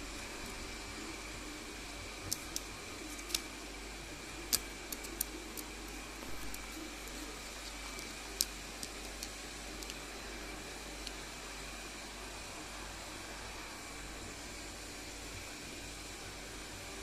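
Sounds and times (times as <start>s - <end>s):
steady hiss: 0.0s - 17.0s
parrot beak clicking on corn: 2.2s - 3.5s, 4.4s - 10.1s.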